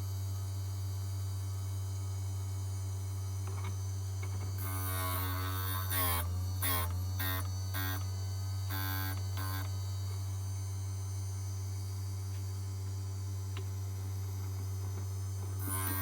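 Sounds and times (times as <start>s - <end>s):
grinder motor humming: 4.6s - 9.8s, 15.6s - 16.0s.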